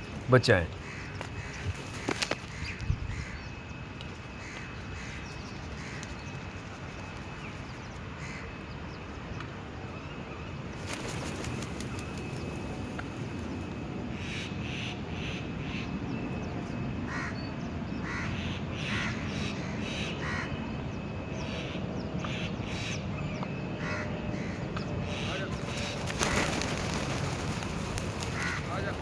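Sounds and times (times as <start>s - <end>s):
birds making harsh calls: 0.4s - 3.6s, 23.8s - 29.0s.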